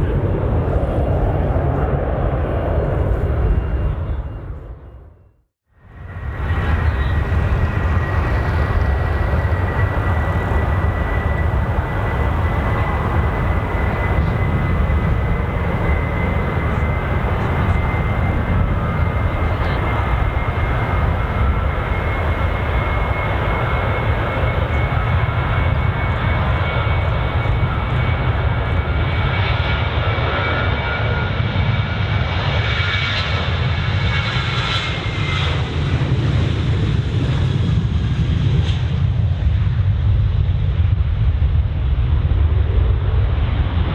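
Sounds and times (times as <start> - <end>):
jet engine whine: 0.0 - 5.2, 5.8 - 43.9
jet engines roaring: 5.8 - 39.0.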